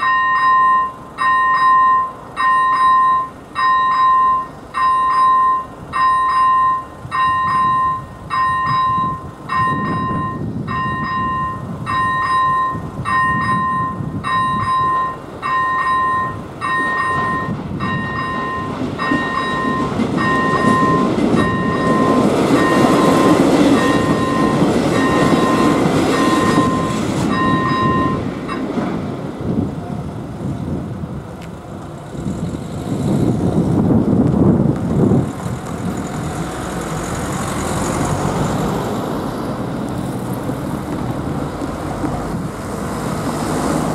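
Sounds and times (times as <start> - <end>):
level crossing bell chiming: 0.0 - 28.2
passenger train passing: 0.0 - 43.9
road vehicle passing: 15.2 - 43.9.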